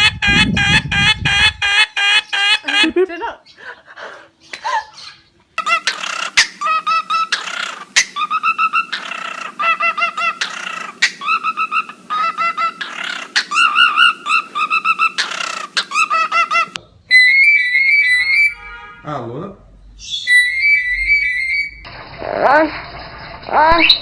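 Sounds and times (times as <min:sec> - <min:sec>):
bird chirping and screeching: 0:00.0 - 0:02.7, 0:04.4 - 0:18.7, 0:20.0 - 0:24.0
bird whistling notes: 0:20.0 - 0:21.8.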